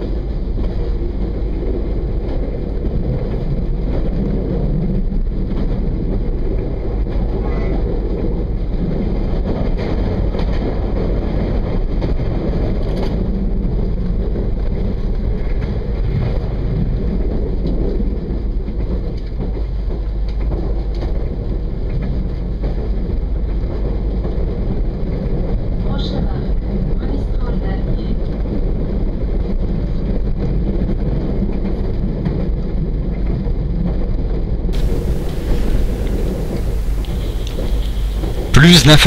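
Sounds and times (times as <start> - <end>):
train wheels rumbling: 34.8 - 39.0.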